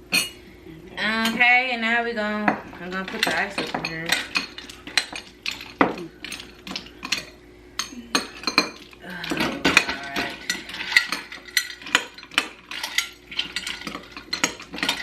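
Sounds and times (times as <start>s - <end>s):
ice cubes clinking in a dish: 8.2s - 15.0s.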